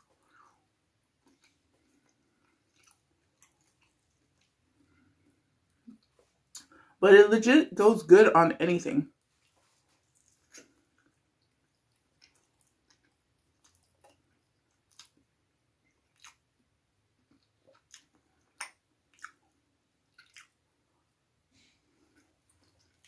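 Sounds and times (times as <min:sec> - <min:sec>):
person chewing with wet smacks: 0:00.0 - 0:06.8, 0:09.2 - 0:21.2, 0:21.9 - 0:23.0.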